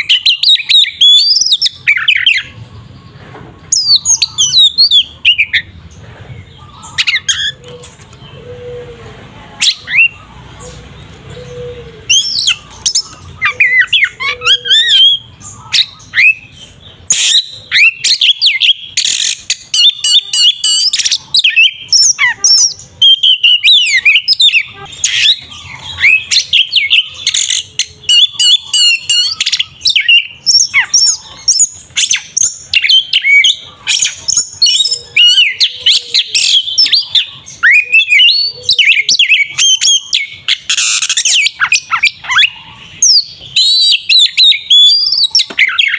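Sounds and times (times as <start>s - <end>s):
songbird singing: 0.0s - 45.9s.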